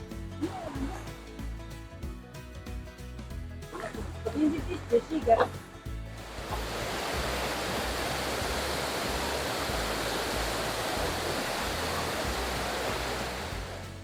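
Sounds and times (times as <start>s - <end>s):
waterfall rushing: 0.4s - 1.4s, 3.7s - 14.0s.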